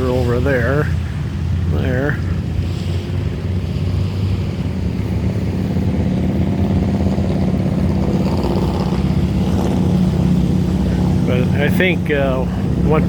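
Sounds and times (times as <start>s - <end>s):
motorcycle engine running: 1.2s - 13.0s.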